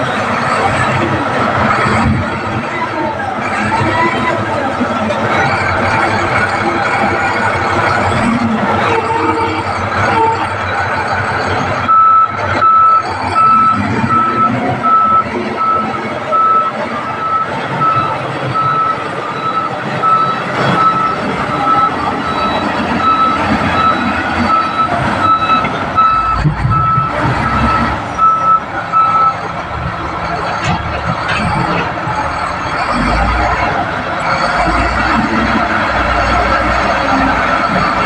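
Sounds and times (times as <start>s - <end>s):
diesel engine running: 0.0s - 38.0s
reverse alarm beeping: 11.9s - 29.4s.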